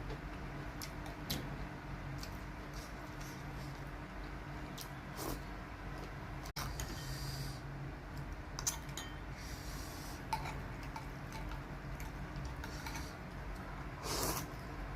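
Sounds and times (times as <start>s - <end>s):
low steady hum: 0.0s - 14.9s
breathing: 6.8s - 7.7s, 9.3s - 10.3s.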